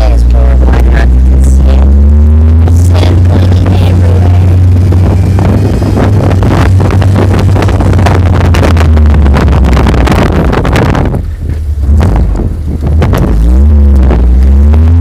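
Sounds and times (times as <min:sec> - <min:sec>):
off-road vehicle engine rumbling: 0:00.0 - 0:15.0
wind buffeting microphone: 0:00.0 - 0:15.0.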